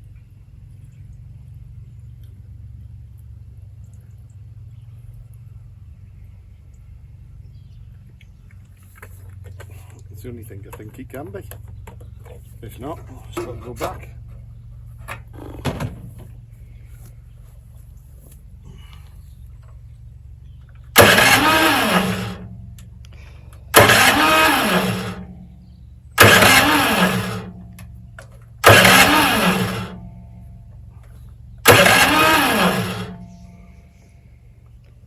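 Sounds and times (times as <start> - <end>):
steady low hum: 15.8 - 35.0
small engine cranking: 21.0 - 25.5, 26.2 - 27.9, 28.6 - 30.2, 31.6 - 33.5.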